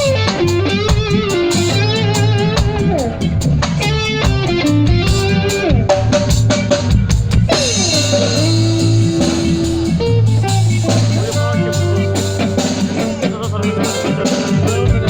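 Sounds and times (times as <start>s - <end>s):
bass guitar: 0.0s - 15.0s
drum kit: 0.0s - 15.0s
electric guitar sliding notes: 0.0s - 15.0s
cymbals washing: 7.5s - 14.5s.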